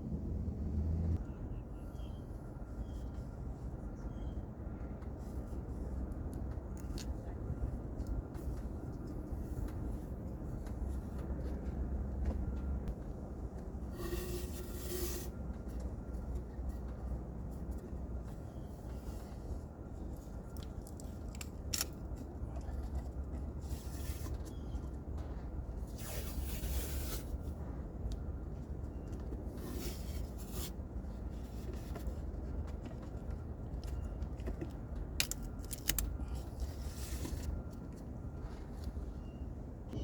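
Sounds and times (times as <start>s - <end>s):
steady low rumble: 0.0s - 2.6s, 3.2s - 14.0s, 26.8s - 40.0s
tools scraping and rustling: 13.9s - 15.4s.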